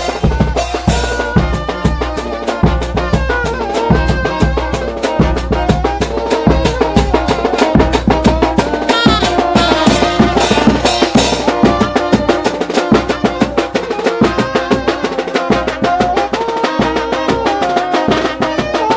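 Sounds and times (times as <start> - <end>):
quick drum beat: 0.0 - 18.9
wind instruments playing melody: 0.0 - 18.9.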